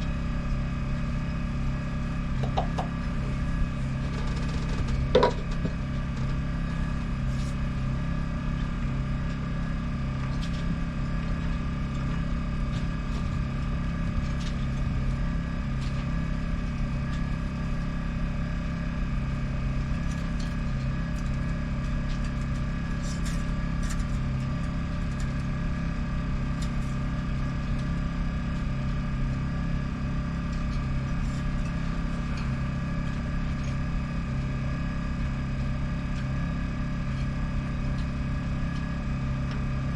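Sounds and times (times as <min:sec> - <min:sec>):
boat diesel engine idling: 0:00.0 - 0:09.9.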